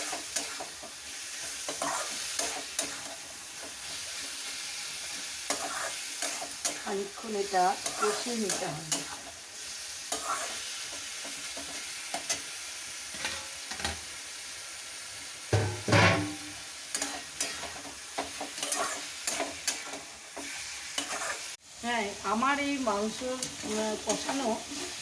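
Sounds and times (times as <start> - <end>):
spatula stirring and scraping: 0.0 - 12.5, 15.6 - 21.6, 22.9 - 25.0
chicken sizzling in a pan: 0.0 - 25.0.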